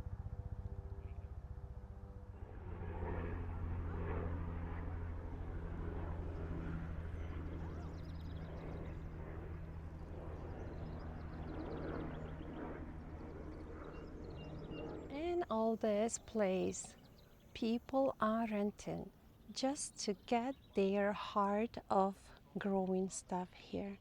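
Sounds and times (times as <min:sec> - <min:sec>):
low motor hum: 0:00.0 - 0:17.8.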